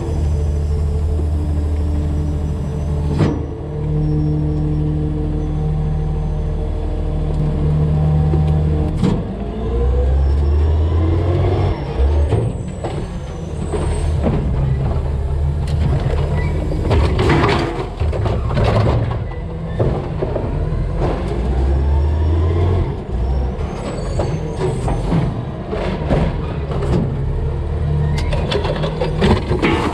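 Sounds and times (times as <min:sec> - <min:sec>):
garbage truck engine: 0:00.0 - 0:29.9
garbage banging into hopper: 0:28.3 - 0:29.9.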